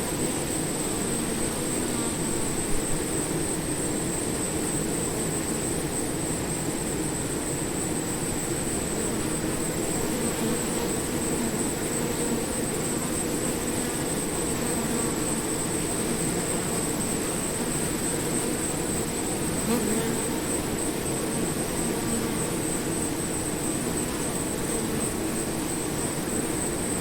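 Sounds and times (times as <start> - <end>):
bees buzzing: 8.7 - 27.0.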